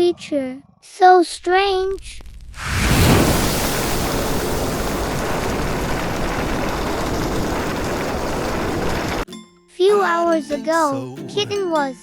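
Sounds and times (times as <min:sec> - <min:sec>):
steady rushing noise: 0:01.4 - 0:09.3.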